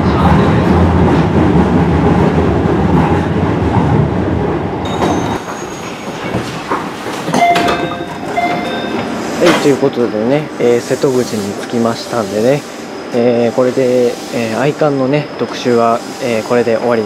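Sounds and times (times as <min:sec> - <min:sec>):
brief ringing tones: 0:07.4 - 0:09.2.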